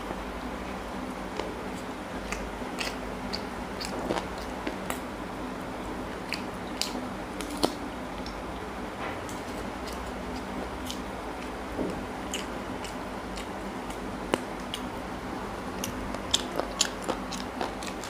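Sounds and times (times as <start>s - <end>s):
faint steady hum: 0.0s - 18.0s
wet chewing and biting: 1.3s - 5.0s, 6.1s - 8.4s, 9.3s - 11.6s, 12.2s - 14.9s, 15.7s - 18.0s
mouth clicks and smacks: 6.2s - 8.4s.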